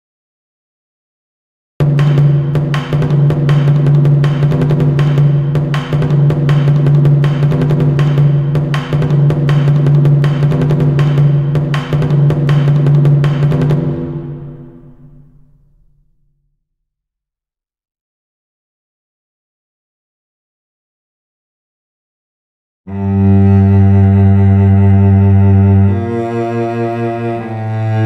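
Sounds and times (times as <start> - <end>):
drum-led instrumental music: 1.8 - 16.1.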